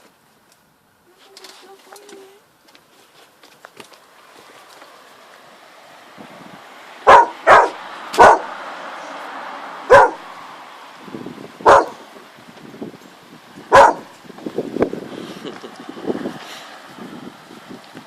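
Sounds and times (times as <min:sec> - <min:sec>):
dog barking: 0:07.0 - 0:08.5, 0:09.9 - 0:10.2, 0:11.6 - 0:12.0, 0:13.7 - 0:14.1.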